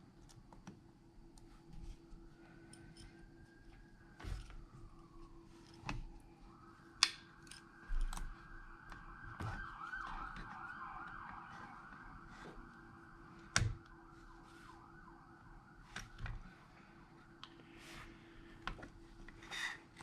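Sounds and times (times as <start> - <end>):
faint siren wailing: 2.4 - 18.2.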